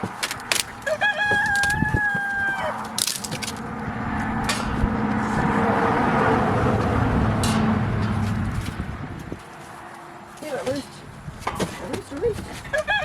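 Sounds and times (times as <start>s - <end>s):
low hum and rumble: 0.5s - 9.5s
rooster crowing: 0.7s - 3.0s, 12.7s - 13.0s.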